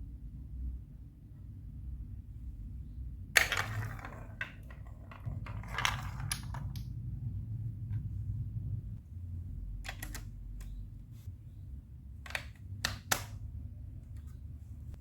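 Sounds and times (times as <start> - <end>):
marbles rolling on plastic track: 3.4 - 7.0.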